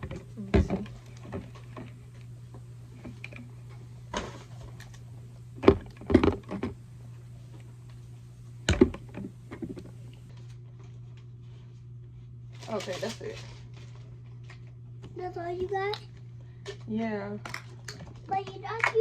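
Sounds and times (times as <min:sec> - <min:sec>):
steady low hum: 0:00.0 - 0:19.0
small items knocking and clattering: 0:05.6 - 0:06.8.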